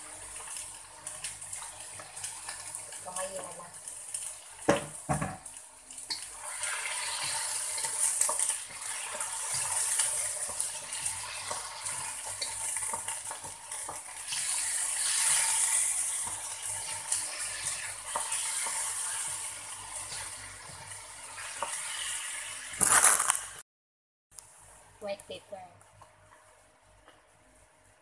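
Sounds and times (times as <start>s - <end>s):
chicken sizzling in hot oil: 0.0s - 23.6s
spatula scraping a wok: 6.1s - 22.8s
spatula tapping a pan: 7.2s - 14.1s, 17.5s - 18.9s.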